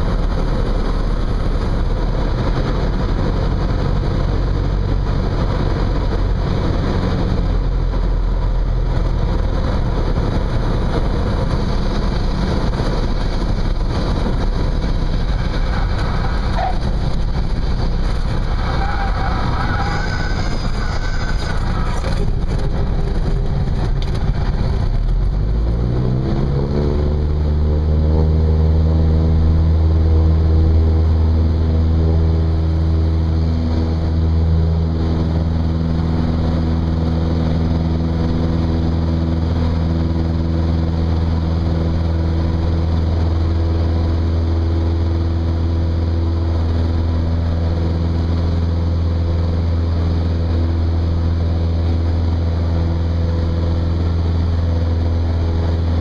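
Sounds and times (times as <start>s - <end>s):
propeller plane engine: 0.0s - 56.0s.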